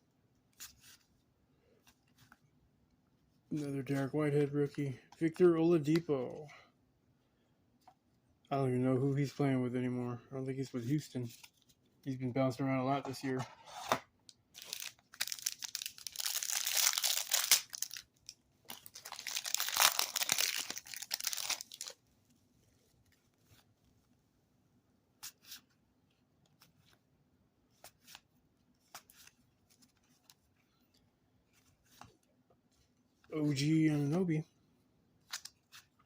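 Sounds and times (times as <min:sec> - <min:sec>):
wrapper tearing and crinkling: 0:14.6 - 0:22.0.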